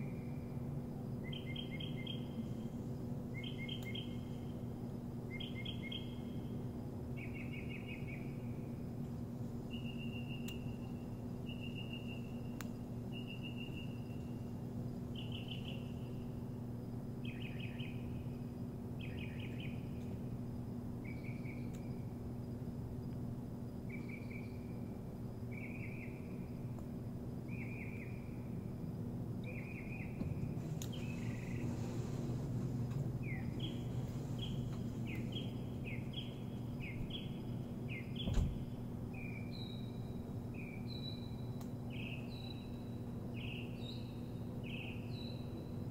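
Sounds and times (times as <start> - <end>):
steady low hum: 0.0 - 45.9
bird chirping: 1.2 - 2.6, 3.3 - 4.6, 5.3 - 8.8, 9.7 - 16.6, 17.2 - 20.2, 21.0 - 22.1, 23.9 - 24.8, 25.5 - 26.5, 27.5 - 28.5, 29.4 - 45.9.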